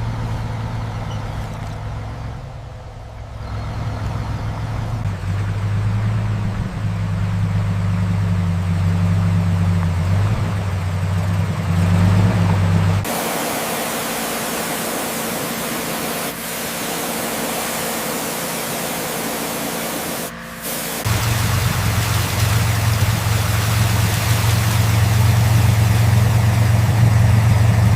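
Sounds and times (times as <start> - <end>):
low mechanical hum: 0.0 - 27.9
hiss of air spraying: 13.1 - 26.1.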